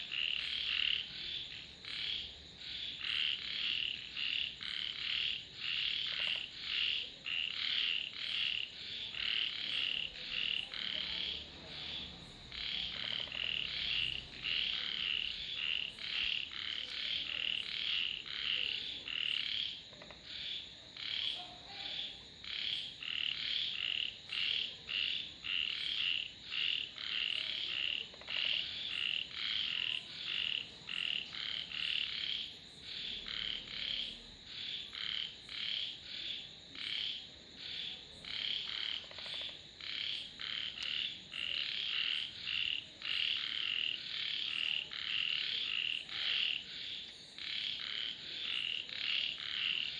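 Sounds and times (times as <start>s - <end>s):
frogs calling: 0.0s - 49.9s.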